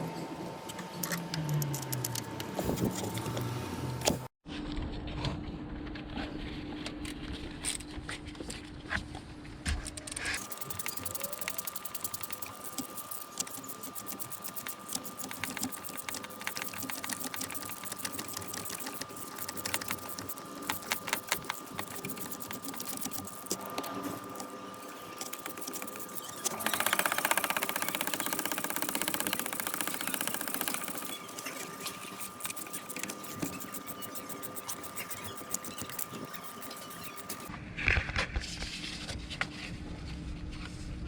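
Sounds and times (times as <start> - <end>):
ratchet wrench clicking: 10.4 - 37.5.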